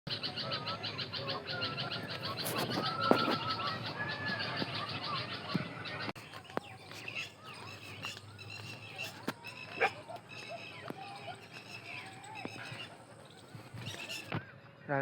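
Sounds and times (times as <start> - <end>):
birds singing and chirping: 0.1 - 15.0.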